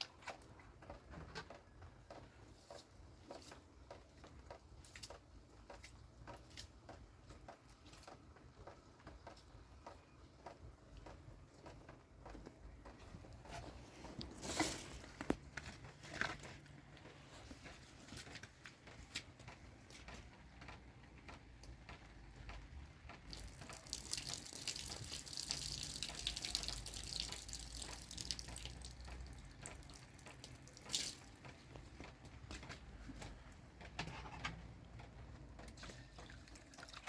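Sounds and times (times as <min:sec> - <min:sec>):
water pouring into pot: 0:23.3 - 0:31.2, 0:36.2 - 0:37.0.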